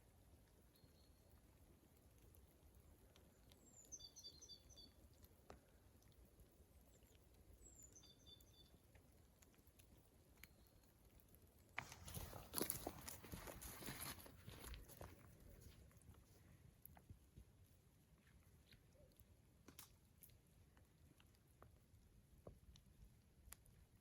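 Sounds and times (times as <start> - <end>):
small bird calling: 3.6 - 5.0, 7.6 - 8.8
crunching rustling noise: 8.9 - 20.5.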